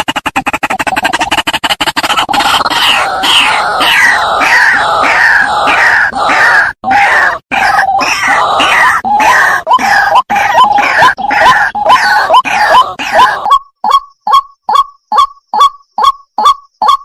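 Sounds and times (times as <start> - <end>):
waterhen calling: 5.1 - 14.0.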